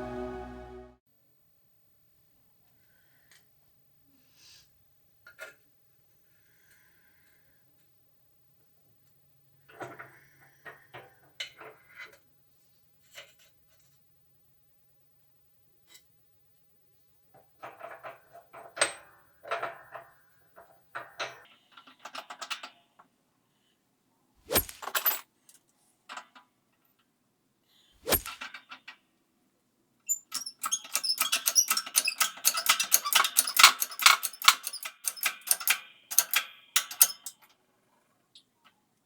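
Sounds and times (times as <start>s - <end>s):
metal tools scraping: 24.5s - 25.2s, 28.1s - 28.4s, 30.1s - 37.4s
rapid clicking and rattling: 30.2s - 37.4s.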